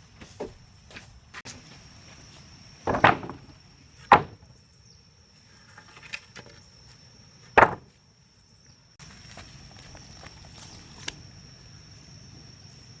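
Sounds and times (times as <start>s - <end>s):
heavy chopping strikes: 7.6s - 7.9s.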